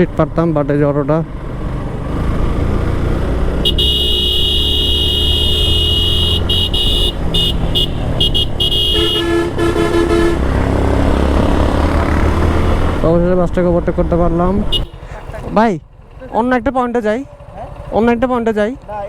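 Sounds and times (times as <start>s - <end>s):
motorcycle engine rumble: 0.0s - 19.0s
wind: 0.0s - 19.0s
high-pitched horn blasts: 3.6s - 10.6s
lower-pitched horn beeps: 3.6s - 10.6s.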